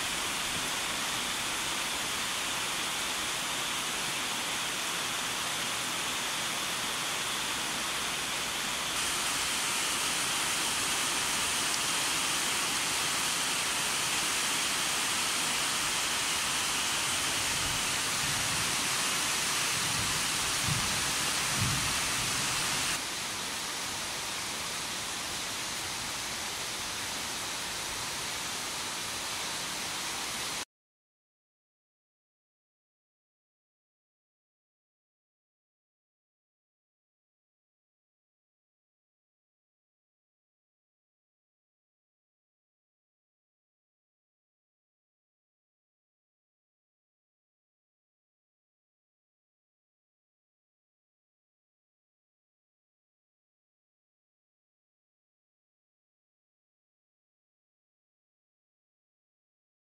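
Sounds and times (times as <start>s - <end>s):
heavy rain pouring: 0.0s - 30.6s.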